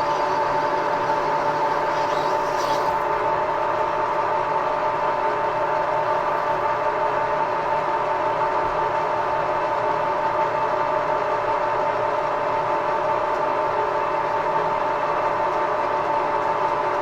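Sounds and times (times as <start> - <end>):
metal lathe whining: 0.0 - 3.5.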